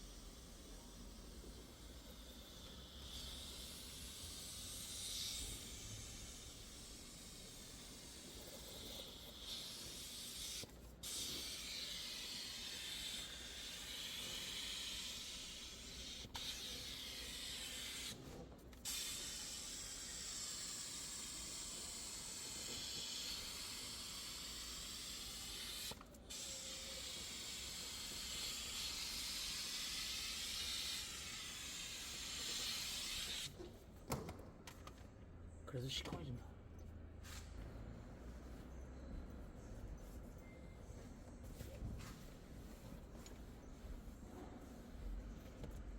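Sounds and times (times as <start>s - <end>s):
cleaning spray gun hissing: 0.1s - 18.2s, 18.8s - 33.5s.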